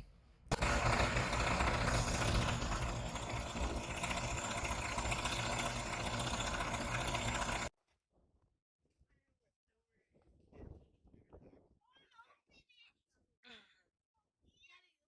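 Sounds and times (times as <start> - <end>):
tractor diesel engine running: 0.5 - 7.7.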